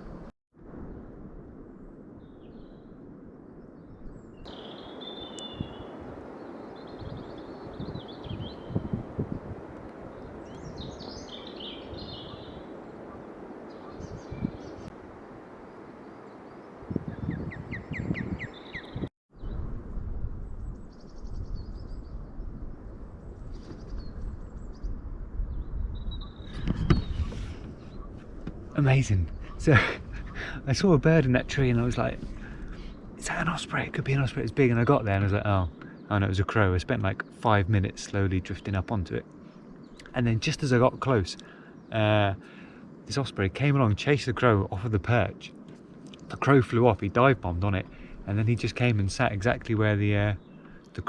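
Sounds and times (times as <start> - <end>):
steady low rumble: 0.0 - 6.3, 19.4 - 41.1
songbirds chirping and warbling: 2.2 - 19.7, 20.6 - 51.0
low rushing background noise: 27.8 - 51.0.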